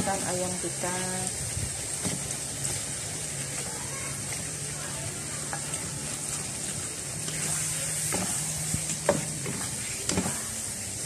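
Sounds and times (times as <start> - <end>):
chicken sizzling in a wok: 0.0 - 11.0
wooden spatula scraping a wok: 5.4 - 10.6.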